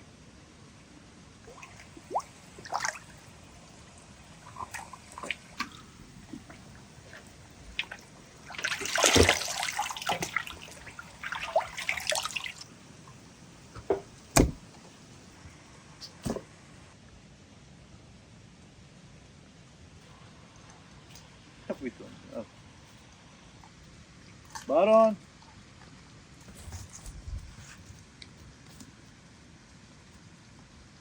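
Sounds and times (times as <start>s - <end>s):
water splashing and dripping: 1.4s - 12.7s, 24.2s - 24.7s
sharp knock: 13.9s - 14.6s.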